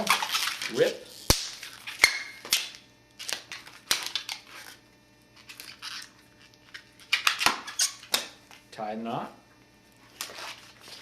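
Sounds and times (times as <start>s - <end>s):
balloon sharp snaps: 1.2s - 2.8s.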